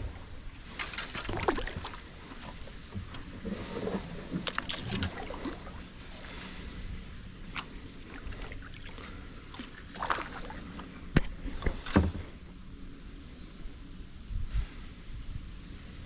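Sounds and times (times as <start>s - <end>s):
paddle splashing in water: 0.7s - 6.6s, 7.4s - 12.3s.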